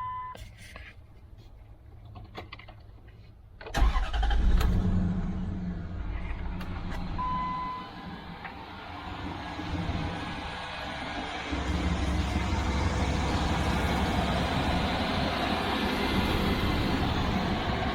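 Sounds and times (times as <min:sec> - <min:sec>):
car engine starting and idling: 0:03.6 - 0:17.9
steady beep tone: 0:07.2 - 0:08.0.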